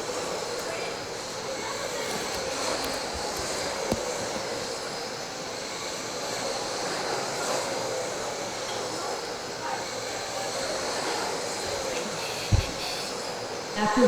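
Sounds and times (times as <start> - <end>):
tyre noise: 1.6 - 4.8, 11.6 - 13.2
rc truck motor whine: 11.5 - 13.7
sharp knock: 12.5 - 13.0.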